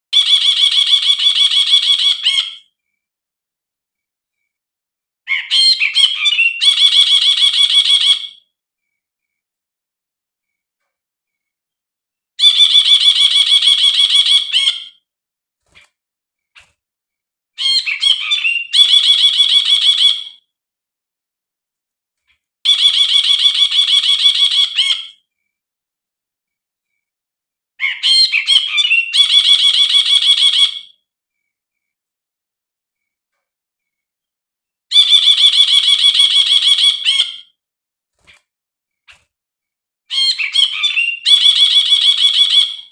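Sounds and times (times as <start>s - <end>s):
bird rapid trill: 22.7s - 25.2s, 27.8s - 30.8s.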